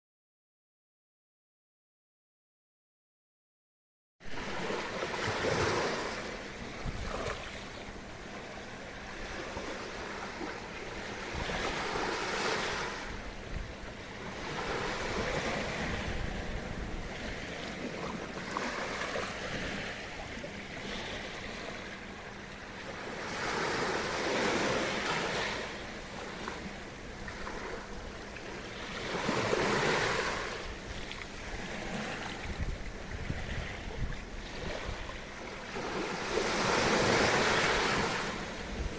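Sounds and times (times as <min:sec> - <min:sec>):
small waves breaking on beach: 0:04.2 - 0:38.9
faint steady hum: 0:04.3 - 0:38.9
wind buffeting microphone: 0:06.6 - 0:07.4, 0:11.0 - 0:18.3, 0:30.3 - 0:35.4, 0:36.0 - 0:38.9.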